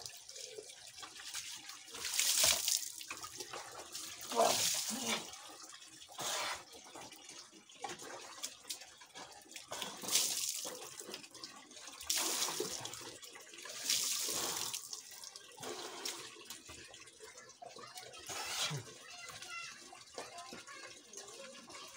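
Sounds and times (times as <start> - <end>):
running water: 0.0 - 21.9
water splashing on concrete floor: 1.0 - 5.6, 9.6 - 11.2, 12.0 - 16.8.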